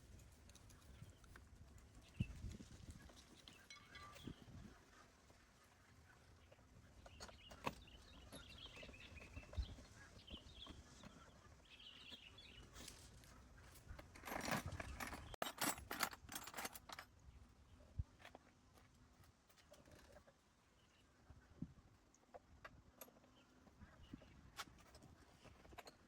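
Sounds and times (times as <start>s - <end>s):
faint bird chirping: 2.0s - 14.0s, 23.0s - 25.9s.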